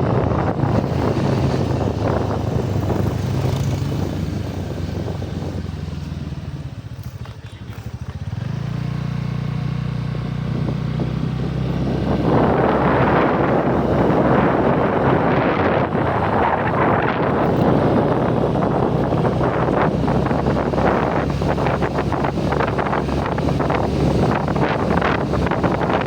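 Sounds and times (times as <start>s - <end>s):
vehicle engine running: 0.0s - 26.0s
wind buffeting microphone: 0.0s - 26.0s.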